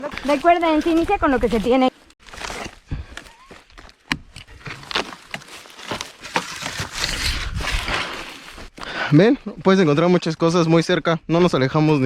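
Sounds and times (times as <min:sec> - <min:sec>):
dry twigs crunching and snapping: 0:02.2 - 0:08.7.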